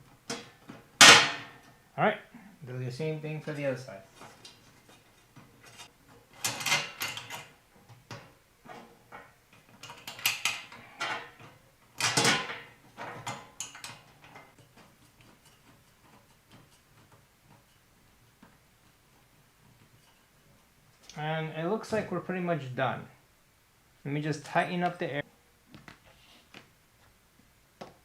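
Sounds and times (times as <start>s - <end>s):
metal rack parts clattering and clicking: 4.2s - 17.8s.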